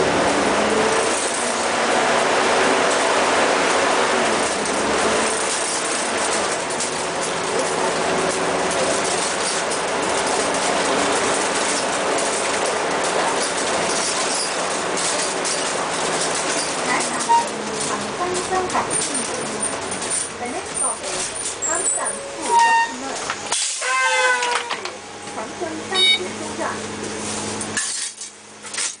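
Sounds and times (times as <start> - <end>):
bus engine droning: 0.0 - 29.0
road and body noise: 0.0 - 29.0
fine rattling and clicking: 4.4 - 25.0.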